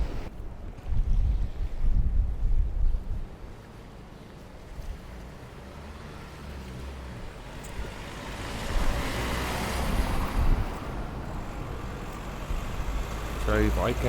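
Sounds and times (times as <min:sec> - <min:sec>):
wind buffeting microphone: 0:00.0 - 0:03.7, 0:07.1 - 0:13.9.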